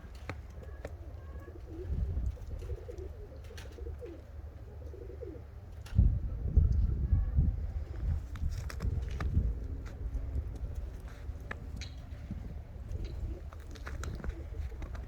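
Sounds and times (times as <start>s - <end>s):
pigeons cooing: 0.0s - 15.0s
low rumble on microphone: 5.7s - 15.0s.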